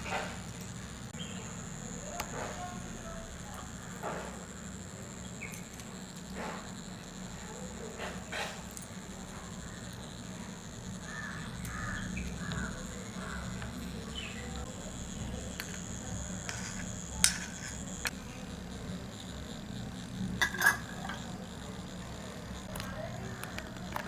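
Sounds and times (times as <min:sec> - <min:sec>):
steady background hum: 0:00.0 - 0:24.0
sharp clicks: 0:08.2 - 0:18.2
birds calling: 0:09.8 - 0:17.1.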